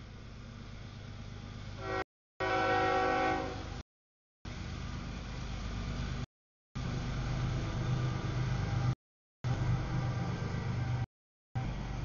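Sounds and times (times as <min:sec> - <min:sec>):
freight train rumbling: 0:00.0 - 0:03.8, 0:04.5 - 0:12.0
train horn: 0:01.8 - 0:03.8.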